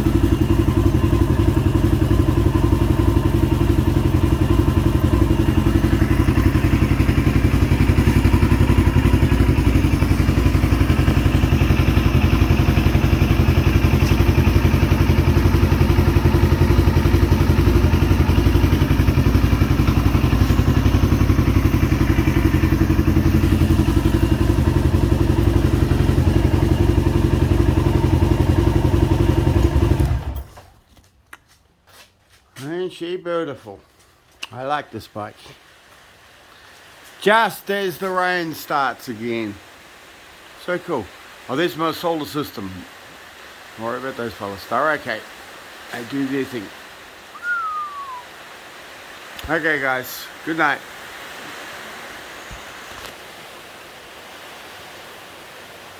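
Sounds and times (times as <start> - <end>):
motorcycle engine running: 0.0 - 30.8.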